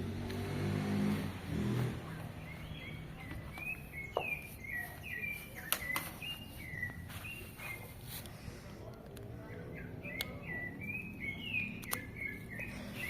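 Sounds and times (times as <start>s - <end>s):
bird whistling: 2.5s - 7.9s, 9.8s - 13.0s
sharp clicks: 11.6s - 12.4s.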